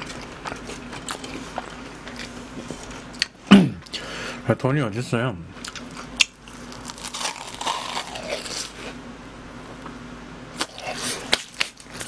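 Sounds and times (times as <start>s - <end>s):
crunching crust: 0.0s - 3.4s, 5.6s - 9.0s, 10.6s - 12.0s
wet chewing: 0.0s - 4.0s.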